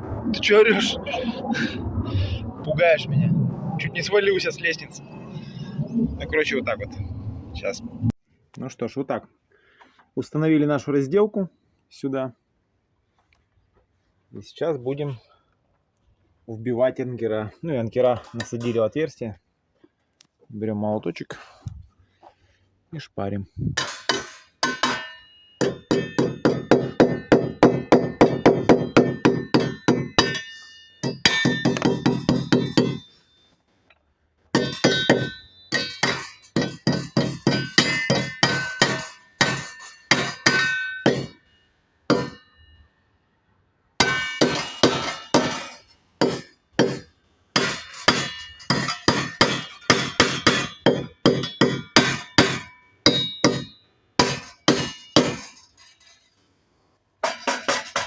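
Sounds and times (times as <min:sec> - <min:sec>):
hammer striking metal bolts: 0:23.8 - 0:33.1, 0:34.6 - 0:41.4, 0:42.1 - 0:42.5, 0:44.0 - 0:56.2, 0:57.2 - 0:58.0.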